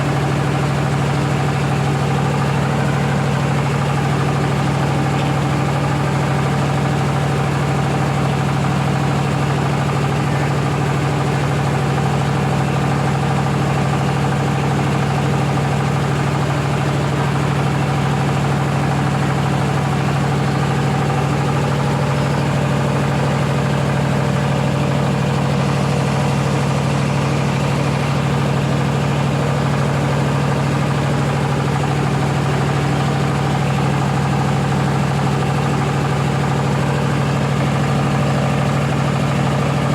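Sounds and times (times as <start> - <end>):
rice milling machine drone: 0.0 - 39.9.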